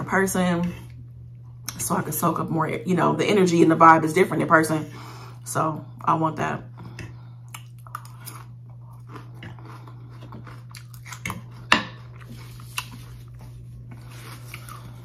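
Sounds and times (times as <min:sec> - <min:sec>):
steady low hum: 0:00.0 - 0:15.0
person chewing crisp lettuce: 0:06.8 - 0:15.0.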